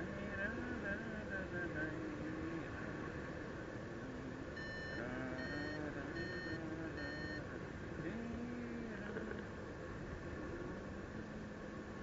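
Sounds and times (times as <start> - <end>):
variometer short beeps: 4.6 - 7.4.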